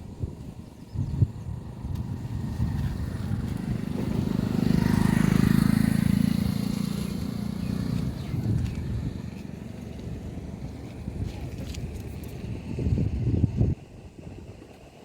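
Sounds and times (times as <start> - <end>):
vehicle engine passing by: 2.1 - 11.2.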